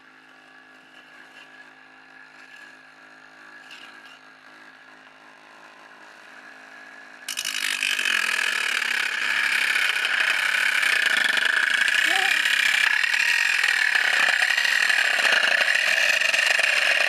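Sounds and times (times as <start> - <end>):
angle grinder motor humming: 1.0 - 17.0
harsh grinding noise: 5.5 - 17.0.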